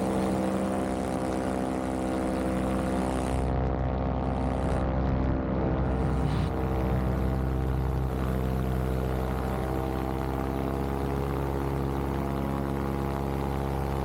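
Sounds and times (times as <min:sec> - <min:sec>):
paramotor engine and propeller drone: 0:00.0 - 0:14.0.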